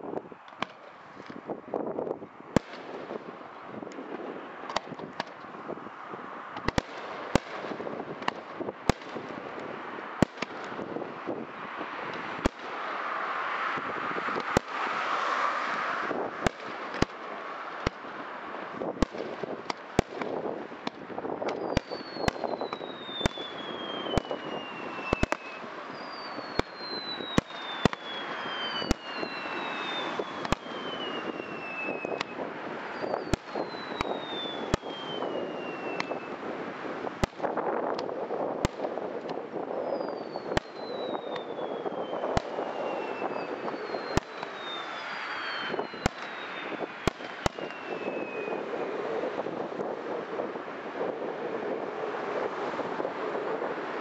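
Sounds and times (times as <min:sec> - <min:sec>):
fireworks crackling: 0:00.0 - 0:54.0
firework whistles falling: 0:21.4 - 0:36.4, 0:39.8 - 0:48.8
firework shells bursting: 0:40.0 - 0:48.6.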